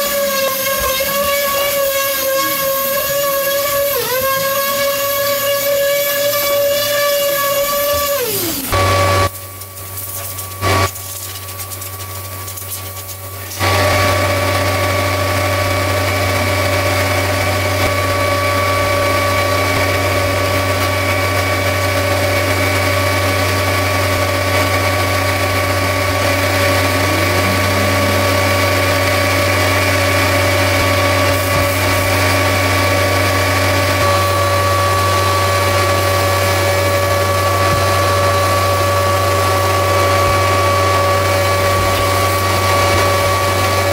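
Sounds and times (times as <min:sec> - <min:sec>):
motor running: 0:21.9 - 0:43.9.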